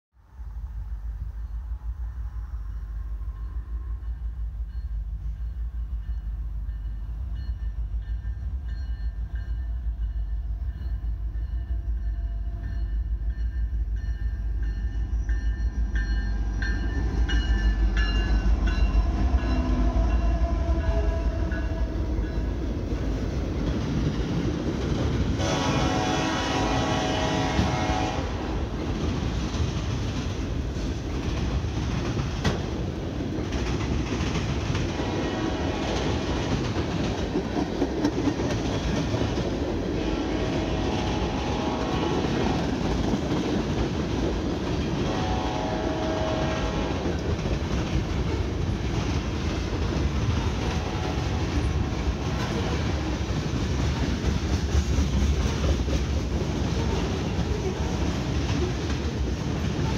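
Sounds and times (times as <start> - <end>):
freight cars rattling on rail: 14.1 - 59.9
train air horn blasts: 18.9 - 22.4, 25.4 - 28.7, 34.9 - 36.6, 39.9 - 42.9, 44.9 - 47.3, 50.4 - 53.0.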